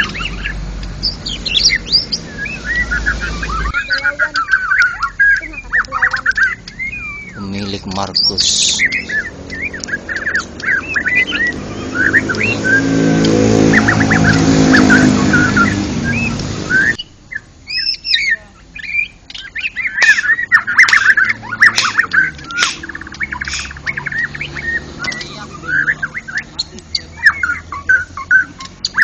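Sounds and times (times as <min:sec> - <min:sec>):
bird singing whistles and chirps: 0:00.0 - 0:29.0
vehicle engine hum: 0:00.0 - 0:29.0.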